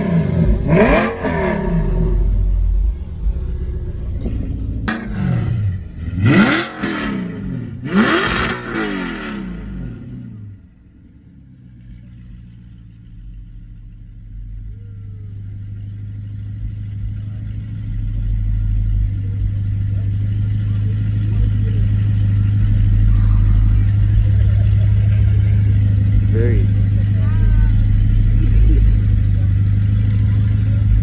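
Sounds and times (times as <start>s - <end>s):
car engine revving: 0.0s - 31.0s
low engine drone: 0.0s - 31.0s
sharp crack: 4.9s - 5.7s.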